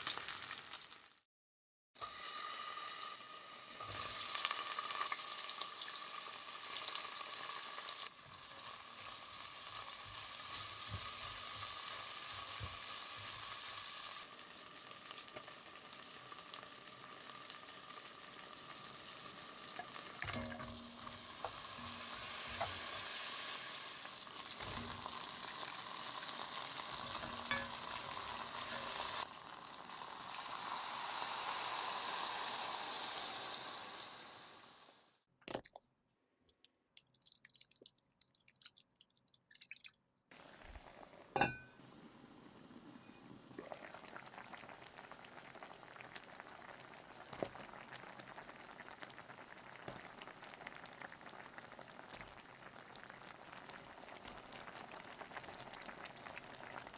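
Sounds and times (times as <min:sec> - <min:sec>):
food sizzling in a pan: 0:00.0 - 0:01.3, 0:02.0 - 0:35.2, 0:40.3 - 0:56.9
utensils clinking: 0:27.1 - 0:28.0.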